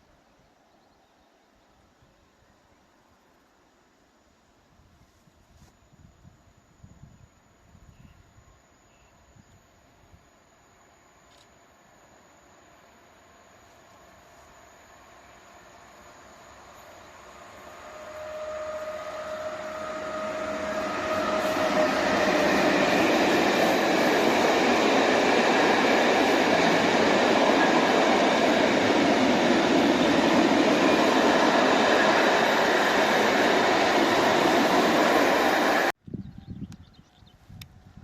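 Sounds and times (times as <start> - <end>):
train passing: 10.4 - 36.0
train wheels rolling noise: 13.1 - 35.9.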